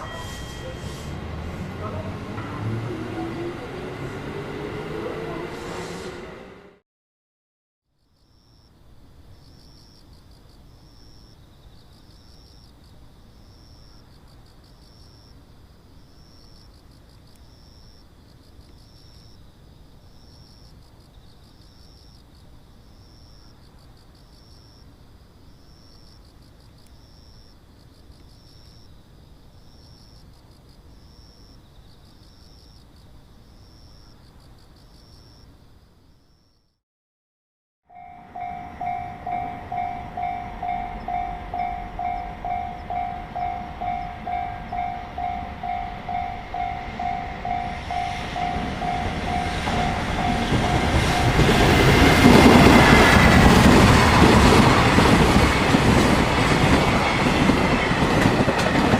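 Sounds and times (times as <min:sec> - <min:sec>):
cricket short high chirps: 0:00.0 - 0:01.2, 0:08.0 - 0:36.8, 0:37.9 - 0:52.8
cricket steady high trill: 0:00.0 - 0:04.3, 0:07.9 - 0:36.8, 0:37.9 - 0:58.9.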